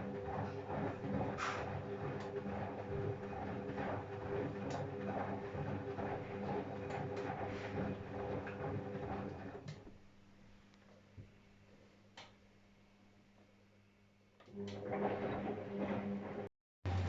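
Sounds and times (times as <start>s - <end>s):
washing machine motor hum: 0.0s - 9.8s, 14.4s - 17.0s.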